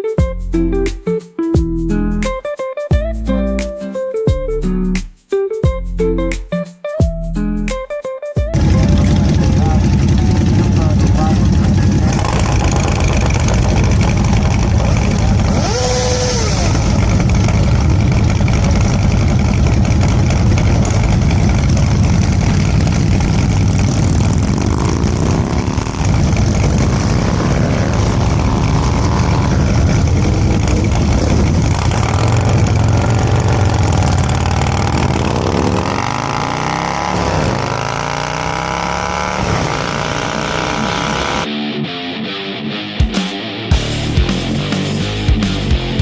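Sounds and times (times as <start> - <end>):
motorcycle engine running: 8.5 - 41.5.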